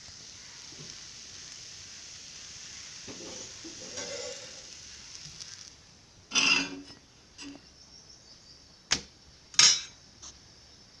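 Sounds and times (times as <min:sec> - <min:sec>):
griddle hissing: 0:00.0 - 0:11.0.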